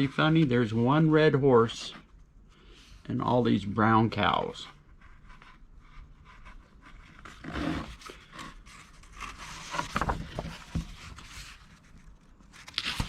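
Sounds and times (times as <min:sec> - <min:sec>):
paper rustling and scraping: 0:04.2 - 0:13.0.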